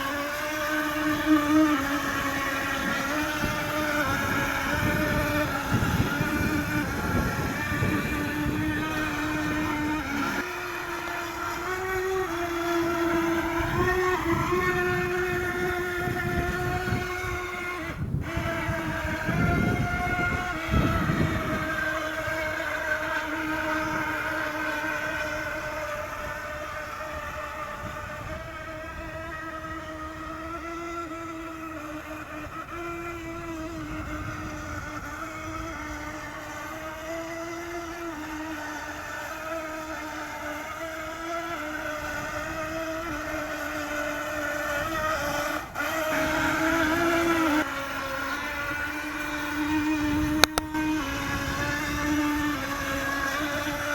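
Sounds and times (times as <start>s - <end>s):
toy boat electric motors whining: 0.0s - 53.9s.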